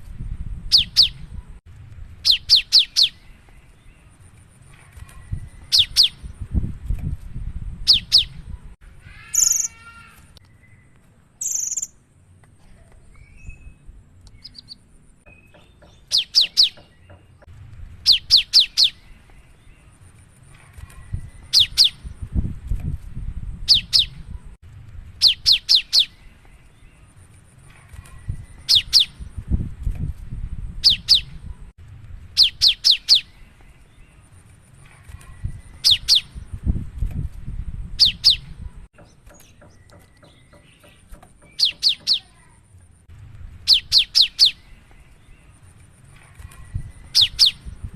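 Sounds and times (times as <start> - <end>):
bird singing high sharp notes: 10.5 - 12.0.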